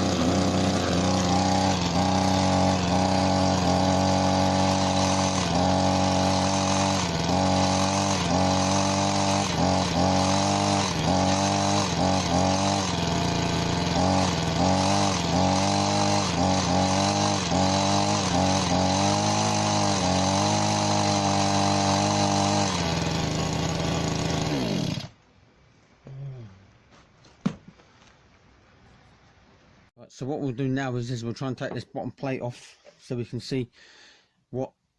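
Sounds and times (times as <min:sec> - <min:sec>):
hedge trimmer engine running: 0:00.0 - 0:25.2.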